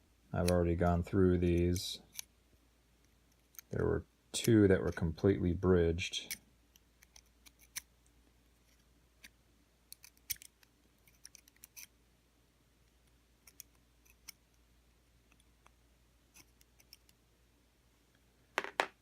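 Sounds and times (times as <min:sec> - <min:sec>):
small metal parts clicking: 0:09.9 - 0:11.9.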